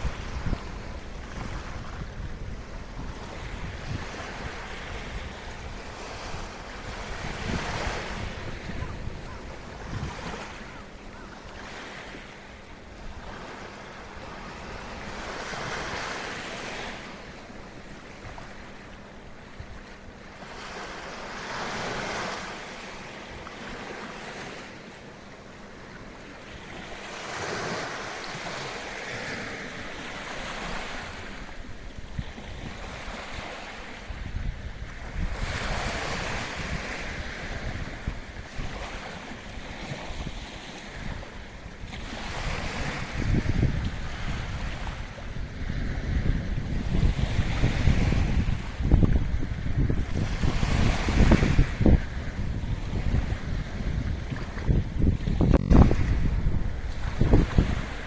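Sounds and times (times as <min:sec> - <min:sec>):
wind buffeting microphone: 0:00.0 - 0:10.8, 0:31.7 - 0:58.0
small waves breaking on shore: 0:00.0 - 0:58.0.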